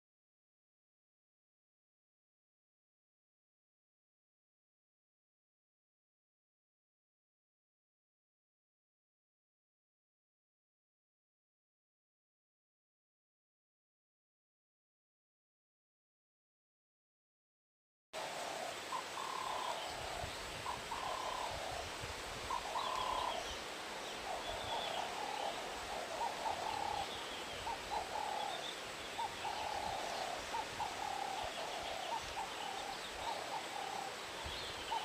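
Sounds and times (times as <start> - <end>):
birds calling: 18.3 - 35.0.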